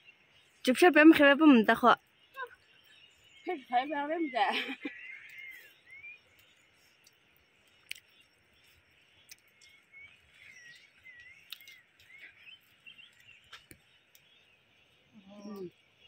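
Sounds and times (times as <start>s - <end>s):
faint birds chirping: 0.0s - 16.0s
sharp clicks: 7.0s - 8.2s.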